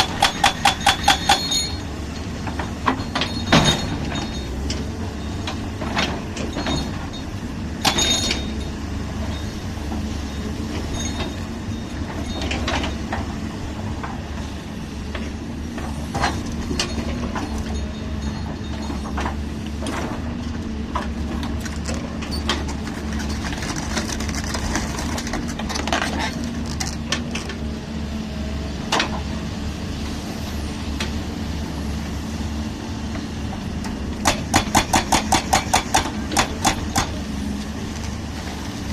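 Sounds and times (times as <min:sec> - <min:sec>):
sharp metal clanks and knocks: 0:00.0 - 0:04.9, 0:05.8 - 0:08.7, 0:34.2 - 0:37.2.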